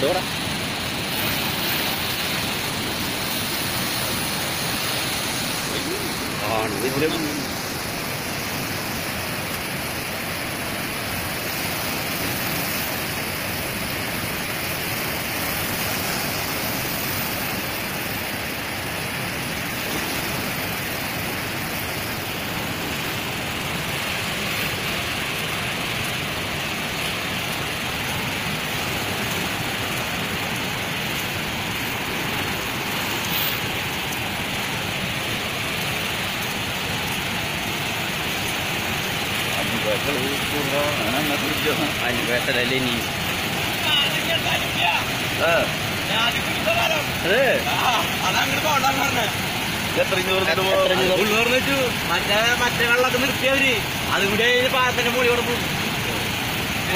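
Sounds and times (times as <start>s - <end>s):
rushing floodwater roar: 0.0s - 56.9s.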